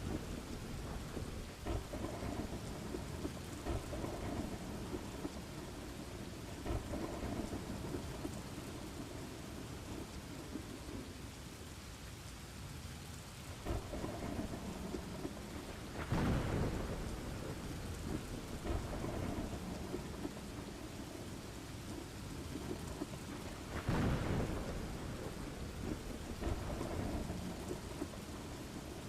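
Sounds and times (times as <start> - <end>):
rolling thunder: 0.0 - 11.2, 13.6 - 29.0
steady rain falling: 0.0 - 29.0.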